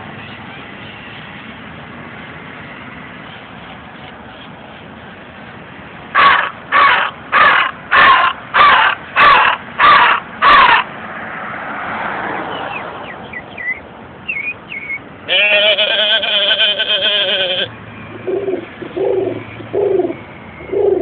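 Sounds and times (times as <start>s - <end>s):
man imitating bird calls: 13.6s - 17.8s.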